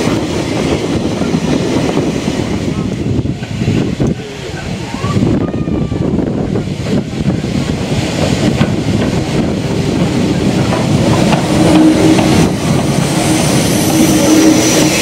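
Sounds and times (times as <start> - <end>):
train rumble: 0.0 - 15.0
train wheels clattering on rails: 6.5 - 15.0.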